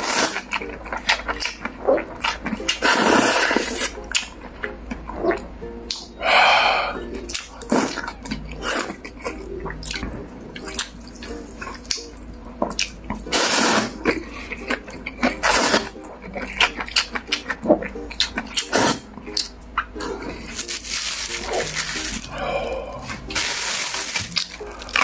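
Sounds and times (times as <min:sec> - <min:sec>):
slurping noodles: 0:00.0 - 0:00.6, 0:01.2 - 0:04.0, 0:07.6 - 0:09.8, 0:13.2 - 0:16.0, 0:18.5 - 0:19.1
wet chewing: 0:00.0 - 0:06.2, 0:06.9 - 0:25.0.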